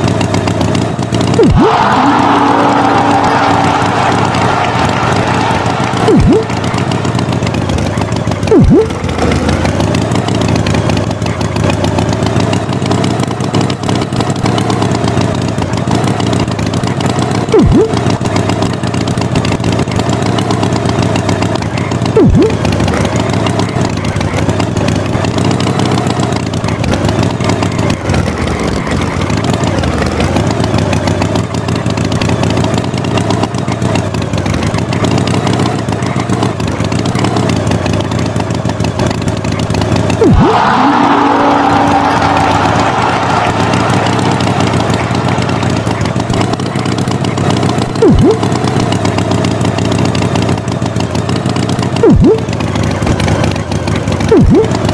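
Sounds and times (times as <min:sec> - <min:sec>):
cartoon tractor engine running: 0:00.0 - 0:54.9
loud sounds dropping in pitch: 0:01.4 - 0:09.4, 0:17.5 - 0:18.1, 0:22.2 - 0:22.7, 0:40.2 - 0:46.7, 0:47.9 - 0:48.7, 0:52.0 - 0:52.5, 0:54.3 - 0:54.9.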